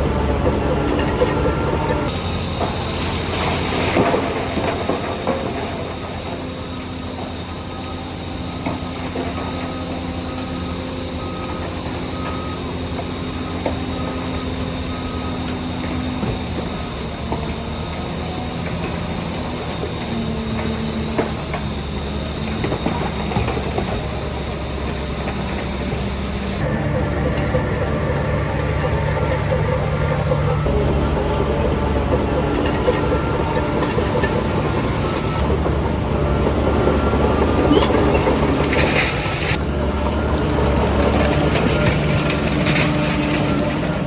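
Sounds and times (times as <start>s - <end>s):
diesel earthmoving machinery running: 0.0s - 44.0s
hiss: 2.1s - 26.6s.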